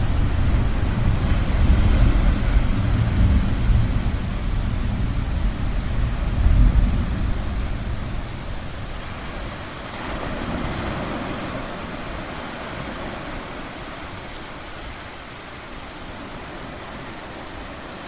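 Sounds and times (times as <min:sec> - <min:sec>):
low rumble: 0:00.0 - 0:08.8
ocean waves washing: 0:00.0 - 0:18.0.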